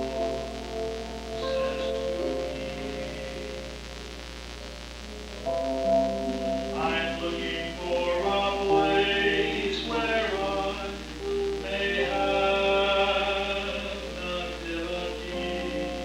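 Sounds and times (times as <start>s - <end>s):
choir singing held notes: 1.3s - 3.7s, 6.7s - 16.0s.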